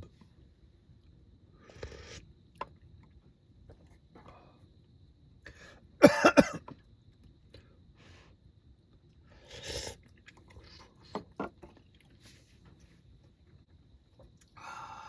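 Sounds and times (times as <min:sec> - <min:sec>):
man coughing: 0:06.0 - 0:06.6.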